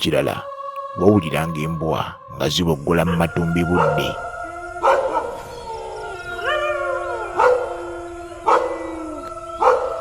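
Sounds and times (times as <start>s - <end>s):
dog howling: 2.9s - 10.0s
dog barking: 3.8s - 4.2s, 4.8s - 5.4s, 7.4s - 7.7s, 8.5s - 8.8s, 9.6s - 10.0s.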